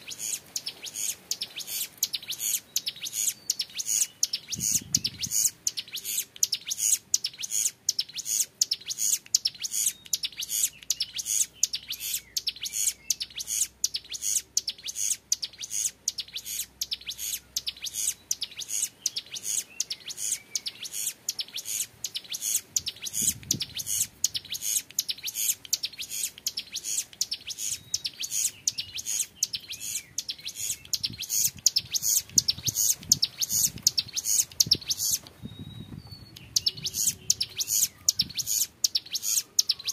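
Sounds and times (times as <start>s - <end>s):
bird singing high sharp chirps: 0.0s - 39.9s.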